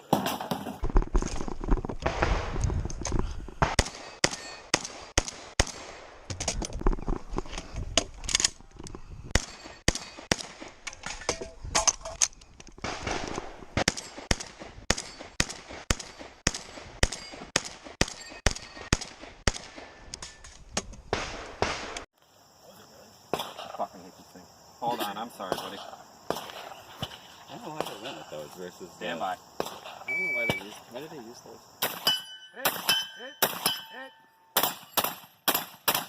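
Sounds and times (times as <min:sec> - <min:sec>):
shotgun shots: 0:03.6 - 0:06.3, 0:09.3 - 0:10.8, 0:12.8 - 0:19.9, 0:21.1 - 0:22.1, 0:23.3 - 0:23.8, 0:25.5 - 0:28.1, 0:29.6 - 0:30.7, 0:31.8 - 0:33.9, 0:34.6 - 0:36.0.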